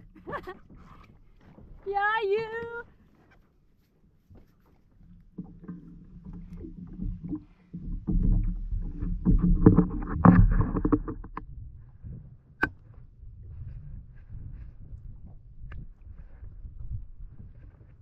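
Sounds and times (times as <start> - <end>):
knocks and thumps on kayak hull: 0.0 - 2.0, 4.3 - 13.0.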